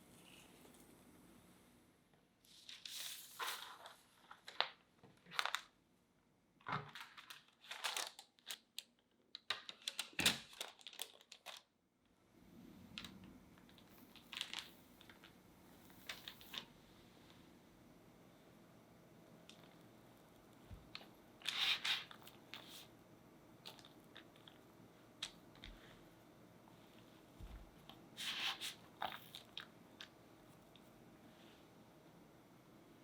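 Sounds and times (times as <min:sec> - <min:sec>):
crinkling and rustling: 0:02.5 - 0:05.8, 0:06.6 - 0:11.7, 0:12.9 - 0:16.7.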